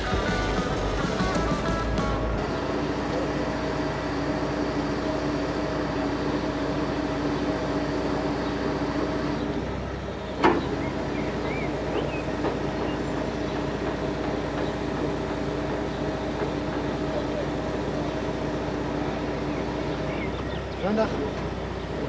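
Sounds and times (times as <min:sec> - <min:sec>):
crane hydraulics hum: 0:00.0 - 0:22.0
diesel engine running: 0:00.0 - 0:22.0
faint bird chirps: 0:10.2 - 0:13.6, 0:19.4 - 0:20.9.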